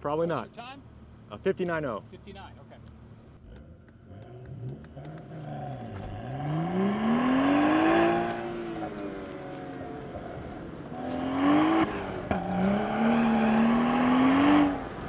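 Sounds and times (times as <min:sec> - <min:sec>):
car engine accelerating hard: 0:03.4 - 0:15.0.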